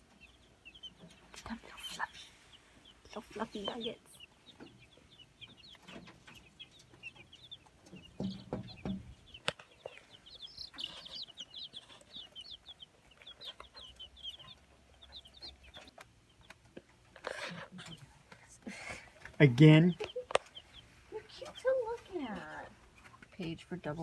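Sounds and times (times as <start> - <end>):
baby chicks peeping: 0.0 - 24.0
dull knocks: 8.0 - 9.2.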